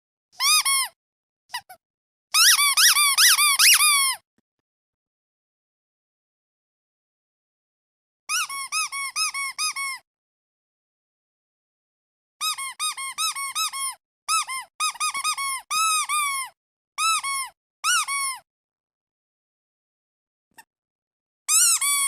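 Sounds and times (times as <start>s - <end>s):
squeaky duck toy squeaks: 0.4s - 4.2s, 8.3s - 10.0s, 12.4s - 18.5s, 21.5s - 22.0s.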